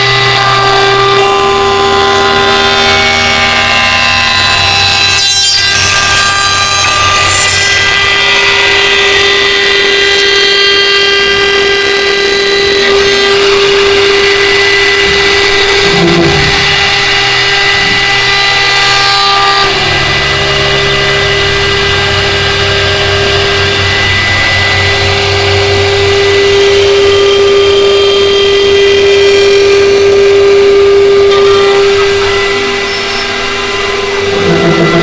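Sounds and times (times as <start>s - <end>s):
low hum: 0.0s - 35.0s
wood lathe motor whining: 0.0s - 35.0s.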